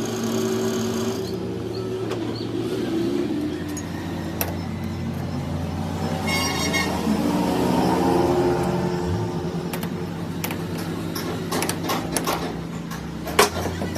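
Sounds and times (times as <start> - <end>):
machine humming: 0.0 - 11.7.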